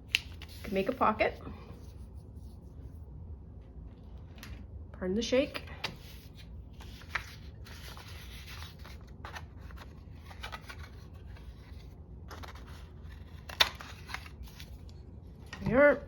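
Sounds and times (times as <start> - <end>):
paper rustling: 6.0 - 15.0.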